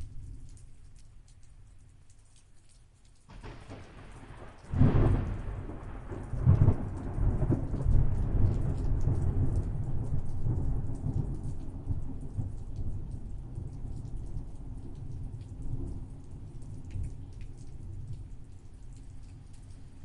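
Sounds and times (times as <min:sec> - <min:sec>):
steady rain: 0:00.0 - 0:20.0
thunder cracking and rumbling: 0:03.3 - 0:18.4.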